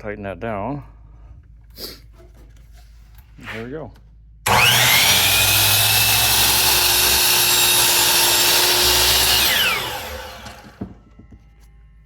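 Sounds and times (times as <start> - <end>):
saw blade spinning down: 4.5 - 10.8
miter saw whining: 4.5 - 11.0.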